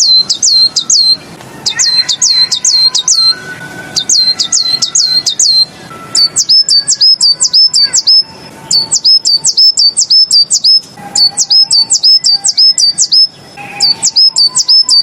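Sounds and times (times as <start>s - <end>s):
bird whistling song: 0.0s - 15.0s.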